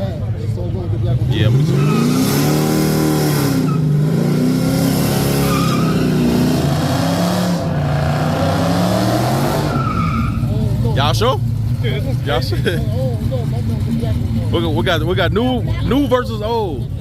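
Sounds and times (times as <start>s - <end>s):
car engine revving hard: 1.3s - 11.2s
tyres squealing: 1.5s - 12.6s.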